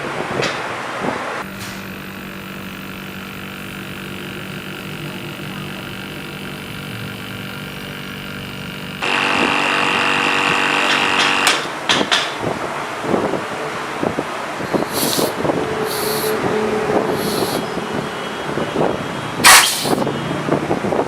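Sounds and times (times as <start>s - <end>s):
electric motor humming: 1.8s - 11.7s, 14.6s - 17.7s, 19.5s - 20.1s
power tool whining: 1.8s - 11.7s, 14.6s - 17.8s, 19.4s - 20.1s.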